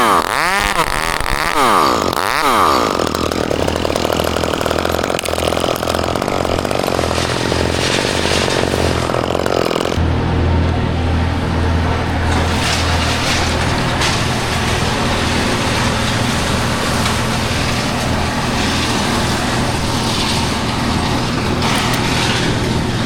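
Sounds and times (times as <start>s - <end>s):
chainsaw revving: 0.0s - 23.0s
low steady engine hum: 10.0s - 23.0s.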